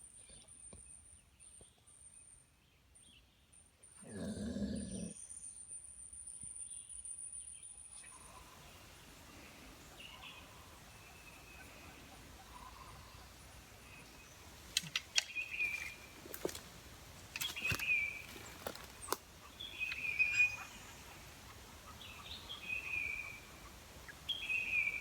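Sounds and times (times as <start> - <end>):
faint chirps: 3.0 - 25.0
dog growling: 4.0 - 5.2.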